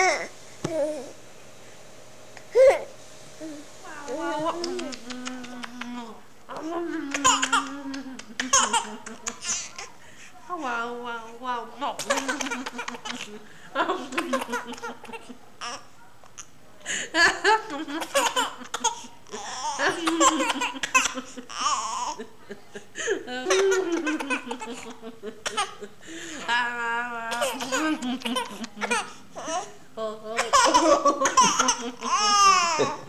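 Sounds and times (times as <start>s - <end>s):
baby girl laughing: 4.4s - 10.0s, 12.0s - 15.8s, 17.2s - 25.9s, 27.3s - 29.7s, 30.4s - 33.0s.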